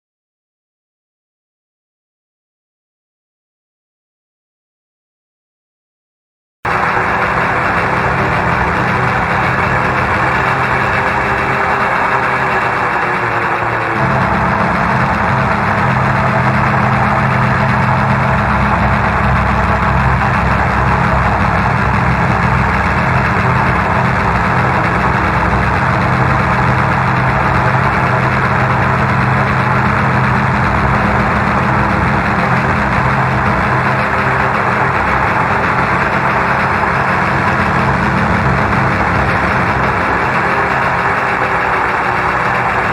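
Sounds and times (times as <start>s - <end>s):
tractor engine running: 6.7s - 42.9s.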